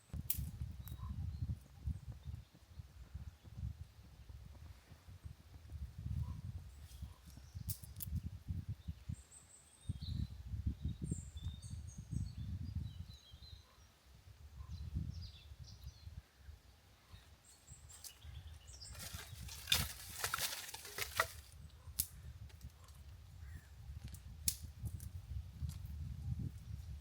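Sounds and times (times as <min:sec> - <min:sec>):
faint bird chirps: 0:00.7 - 0:04.3, 0:06.1 - 0:19.7
crackling and snapping: 0:17.9 - 0:23.0.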